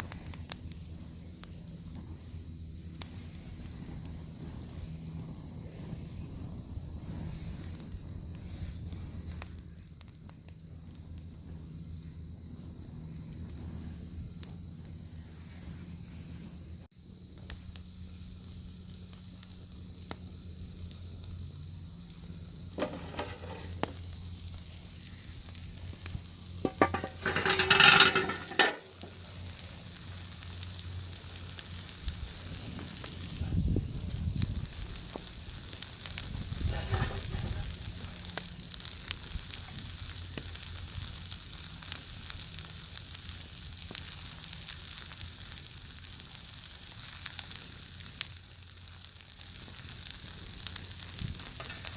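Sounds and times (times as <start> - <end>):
wood fire crackling: 0.0 - 51.9
bacon sizzling in a pan: 17.0 - 51.9.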